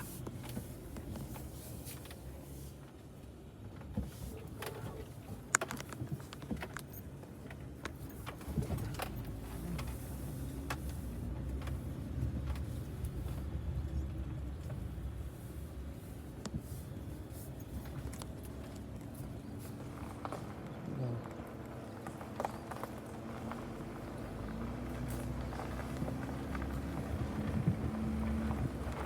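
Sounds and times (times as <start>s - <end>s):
vehicle engine and road rumble: 0.0s - 29.0s
clicks and light rattles: 3.7s - 10.0s.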